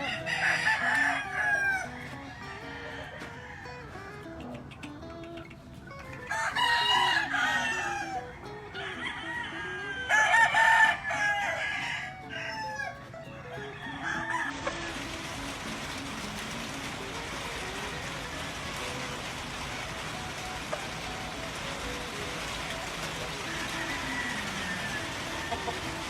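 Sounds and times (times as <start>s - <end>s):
chickens clucking: 0.0s - 26.0s
roosters crowing: 0.0s - 26.0s
steady hiss: 14.4s - 26.0s.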